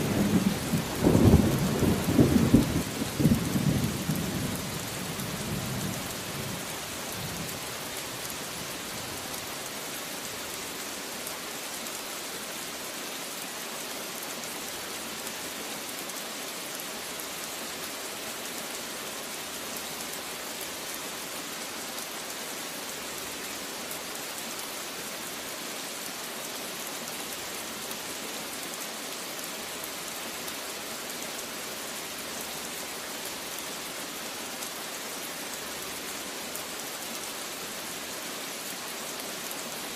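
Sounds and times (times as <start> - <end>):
thunder rumble: 0.0 - 4.2
steady rain hiss: 0.0 - 39.9.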